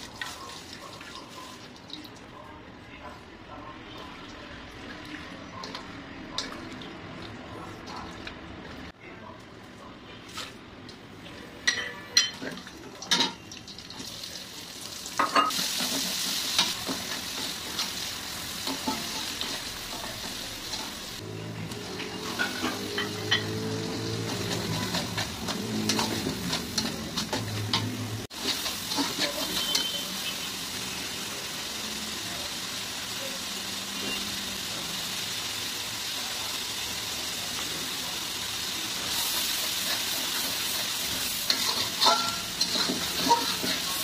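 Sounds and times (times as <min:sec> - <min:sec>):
paste sizzling in hot oil: 0:14.0 - 0:21.2, 0:21.9 - 0:44.0
metal spatula scraping a pot: 0:24.2 - 0:30.0, 0:41.5 - 0:44.0.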